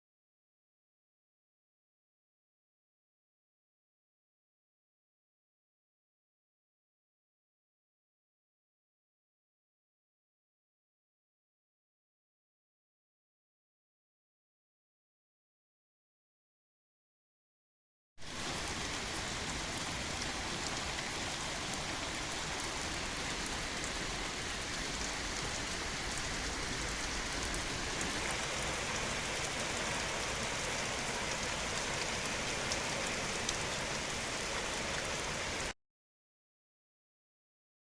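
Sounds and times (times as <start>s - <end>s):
steady rain falling: 18.2s - 35.8s.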